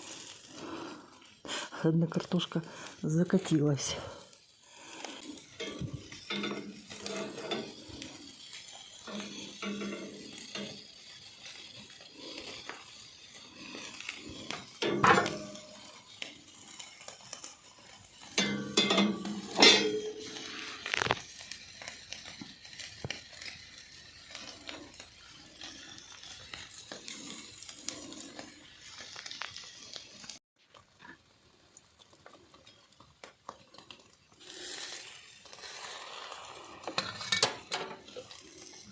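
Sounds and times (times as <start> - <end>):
food sizzling: 0.0 - 38.9
wood fire crackling: 0.0 - 38.9
metallic clinks and knocks: 18.4 - 20.3.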